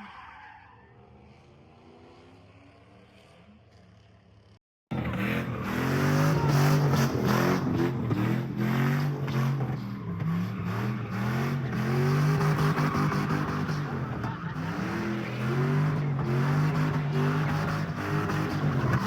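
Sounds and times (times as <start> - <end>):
car engine revving hard: 4.9 - 19.0.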